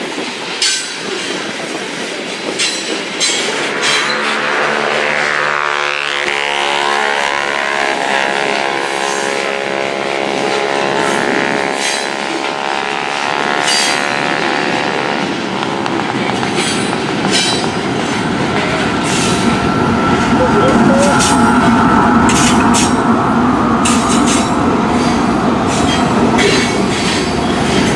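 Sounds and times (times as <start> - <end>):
long pitched tone: 19.8 - 23.2.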